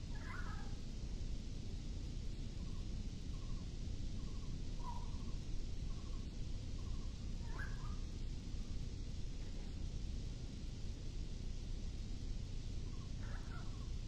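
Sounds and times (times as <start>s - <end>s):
low background rumble: 0.0s - 14.0s
bird chirping: 2.6s - 8.1s.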